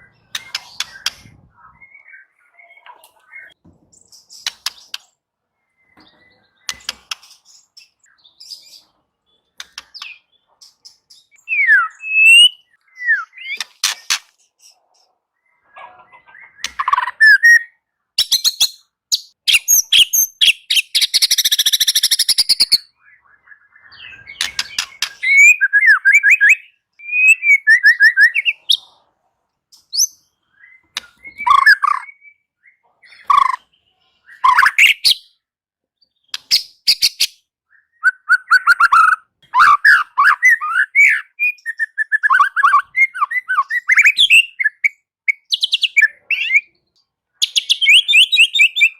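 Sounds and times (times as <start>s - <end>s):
bird singing varied phrases: 0.0s - 29.1s, 29.7s - 48.9s.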